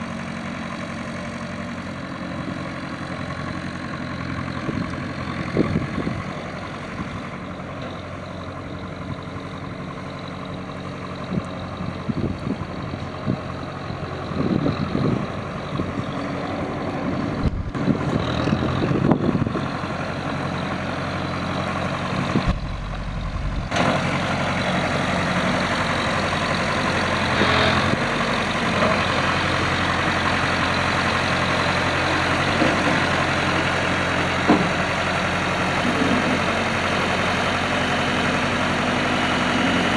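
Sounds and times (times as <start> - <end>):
tractor engine idling: 0.0 - 39.9
short bumps: 17.4 - 18.3, 22.2 - 24.1.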